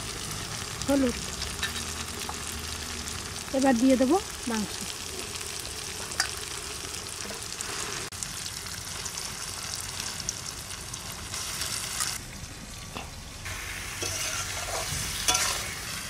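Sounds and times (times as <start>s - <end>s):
chicken sizzling in hot oil: 0.0s - 16.0s
metal spatula scraping pan: 14.0s - 15.8s.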